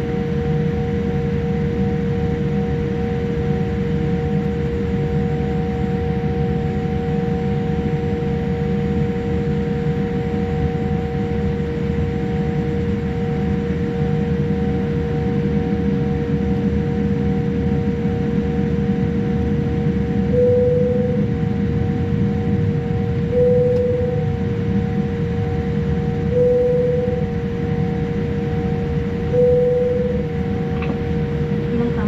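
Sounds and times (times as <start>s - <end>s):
steady humming tones: 0.0s - 32.0s
airliner cabin rumble: 15.6s - 32.0s.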